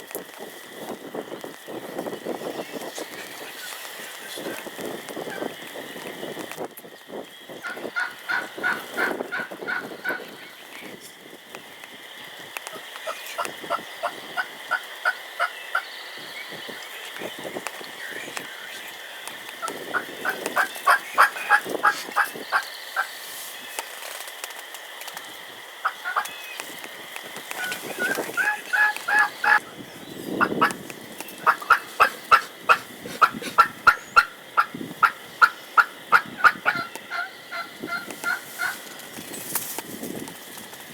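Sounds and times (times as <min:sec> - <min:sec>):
wind gusts: 0:00.0 - 0:40.9
turkey yelping: 0:07.6 - 0:10.2, 0:19.6 - 0:23.1, 0:25.8 - 0:26.4, 0:27.5 - 0:29.6, 0:31.4 - 0:38.8.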